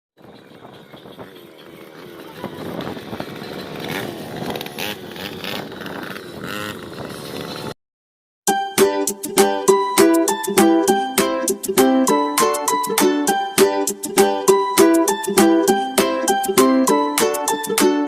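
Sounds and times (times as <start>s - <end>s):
atv engine revving: 0.7s - 7.8s
plucked ukulele music: 8.5s - 18.0s.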